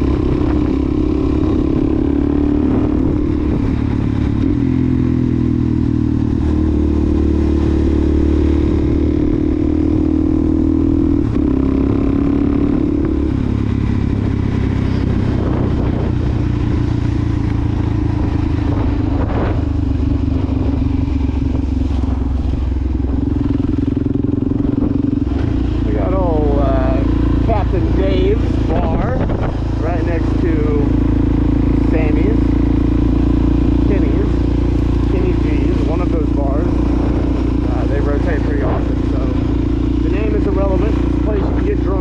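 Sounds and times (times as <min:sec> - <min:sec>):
motorcycle engine cruising: 0:00.0 - 0:42.0.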